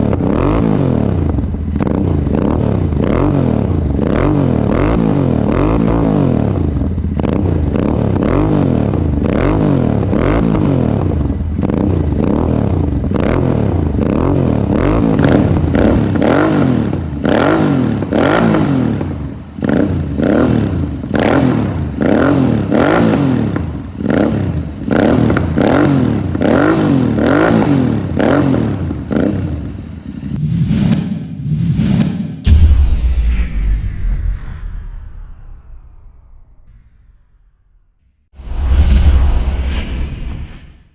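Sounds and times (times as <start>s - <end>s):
motorcycle throttle blips: 0.0s - 30.4s
motorcycle engine revving: 0.0s - 32.6s.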